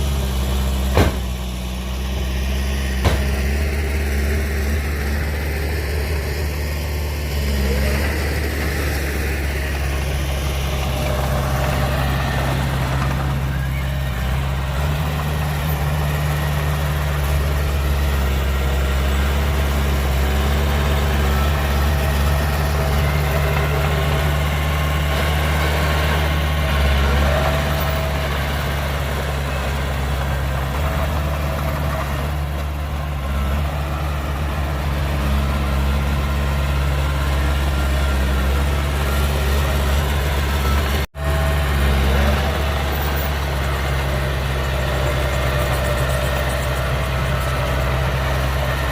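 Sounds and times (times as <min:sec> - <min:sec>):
heavy diesel machinery running: 0:00.0 - 0:48.9.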